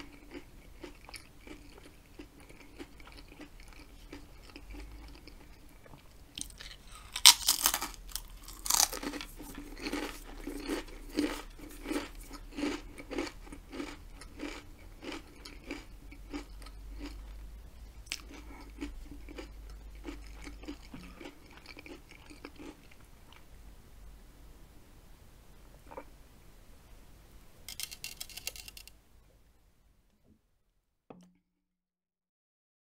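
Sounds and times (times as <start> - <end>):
potato chip crunching: 0.0 - 17.4, 18.0 - 23.4, 27.7 - 28.9.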